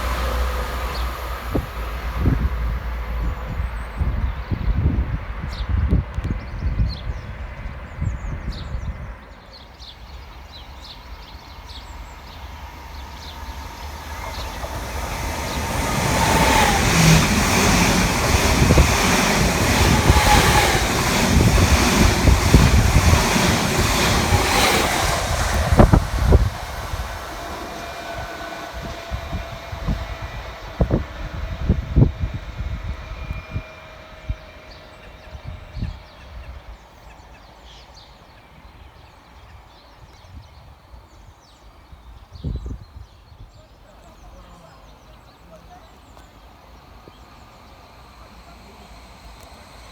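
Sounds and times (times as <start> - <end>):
wind buffeting microphone: 0.0 - 9.3, 11.5 - 36.8, 42.0 - 43.6
train passing at speed: 0.0 - 49.9
wheels clattering over rails: 10.5 - 32.1.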